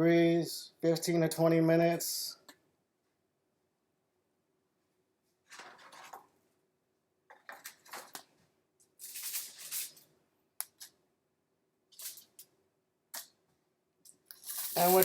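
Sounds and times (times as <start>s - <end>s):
rustling and scraping handling noise: 5.3s - 6.4s, 7.3s - 10.2s, 11.9s - 12.5s, 14.3s - 15.0s.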